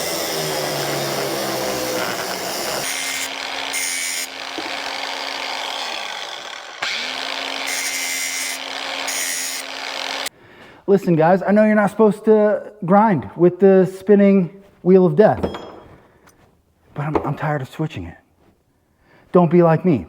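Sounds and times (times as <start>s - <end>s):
angle grinder grinding sheet steel: 0.0s - 10.3s.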